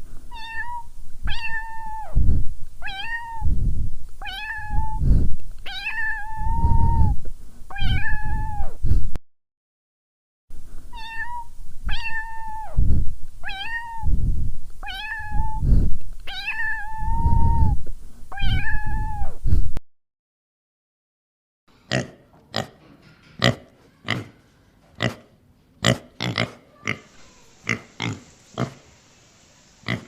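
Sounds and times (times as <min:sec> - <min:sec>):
low rumbling noise: 0:00.0 - 0:05.6, 0:10.5 - 0:19.8
cat meowing: 0:00.3 - 0:02.2, 0:02.8 - 0:03.5, 0:04.2 - 0:05.0, 0:05.7 - 0:08.8, 0:10.9 - 0:12.8, 0:13.4 - 0:14.1, 0:14.8 - 0:15.6, 0:16.3 - 0:19.4.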